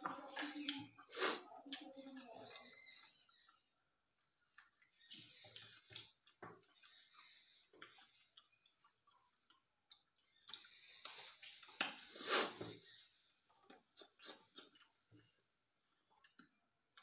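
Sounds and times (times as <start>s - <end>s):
chewing and lip smacks: 4.4s - 12.2s, 13.4s - 15.1s, 16.2s - 17.0s.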